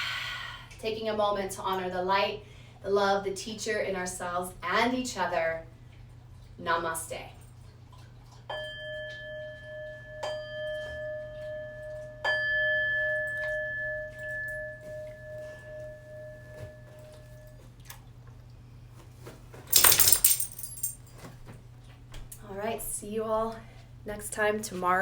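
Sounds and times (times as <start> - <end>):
loud rattle: 19.7 - 21.1.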